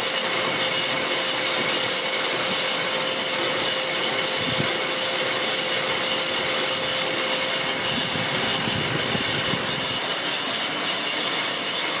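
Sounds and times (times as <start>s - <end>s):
lathe machine running: 0.0s - 12.0s
lathe tool high-pitched whine: 0.0s - 12.0s.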